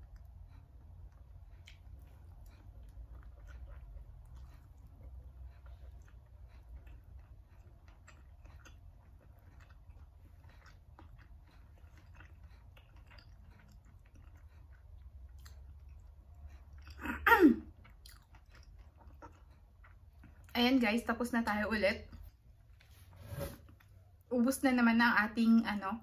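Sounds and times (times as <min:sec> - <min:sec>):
chewing: 0:00.0 - 0:20.8.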